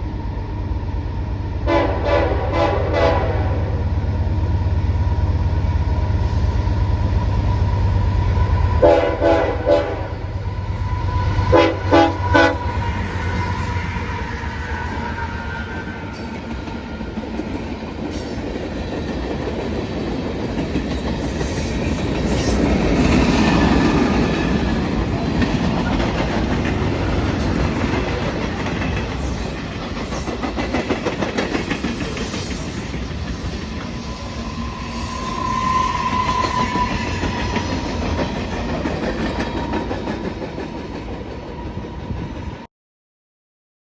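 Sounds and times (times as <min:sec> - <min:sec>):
train wheels clicking over rail joints: 0:15.7 - 0:42.6
brief high tone: 0:34.0 - 0:37.9.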